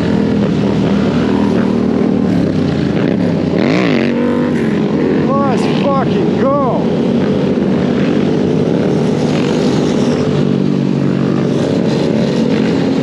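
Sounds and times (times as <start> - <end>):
dirt bike motor drone: 0.0 - 13.0.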